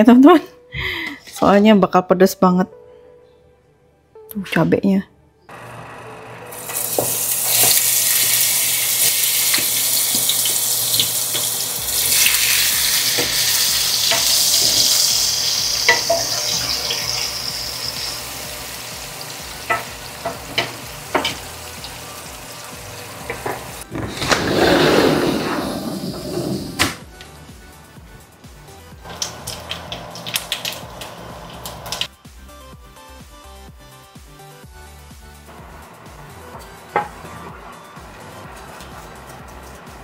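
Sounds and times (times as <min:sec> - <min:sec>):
chilies sizzling in hot oil: 0:06.5 - 0:23.9.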